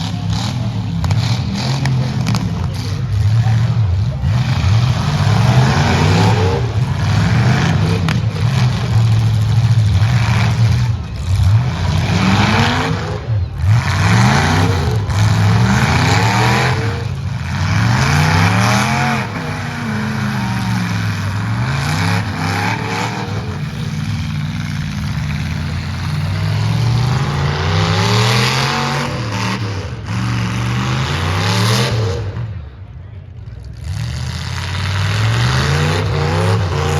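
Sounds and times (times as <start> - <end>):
truck engines revving: 0.0 - 36.9
trucks hitting each other: 0.0 - 36.9.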